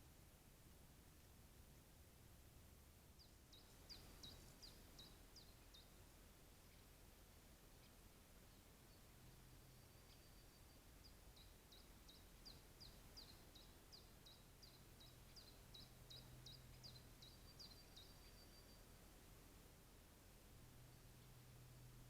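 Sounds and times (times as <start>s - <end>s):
faint high falling bird calls: 3.2s - 7.0s, 7.8s - 19.2s.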